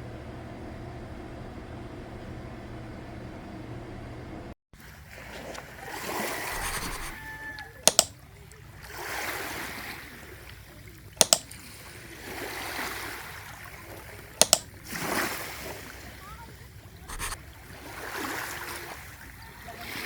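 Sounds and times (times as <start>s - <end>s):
washing machine water sloshing: 4.8s - 20.0s
sharp double click: 7.9s - 8.1s, 11.2s - 11.5s, 14.4s - 14.7s, 17.1s - 17.4s.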